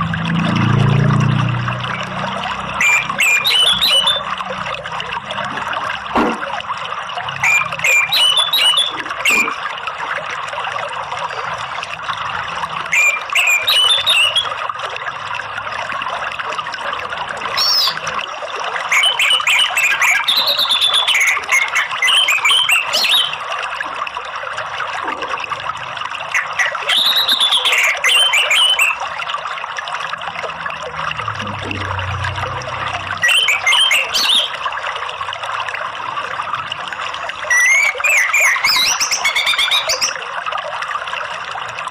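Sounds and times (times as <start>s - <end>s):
trickle of running water: 0.0s - 41.9s
thrush singing whistled phrases: 2.8s - 4.3s, 7.4s - 9.5s, 12.9s - 14.6s, 17.6s - 18.1s, 18.9s - 23.4s, 26.3s - 29.0s, 33.2s - 34.6s, 37.5s - 40.2s.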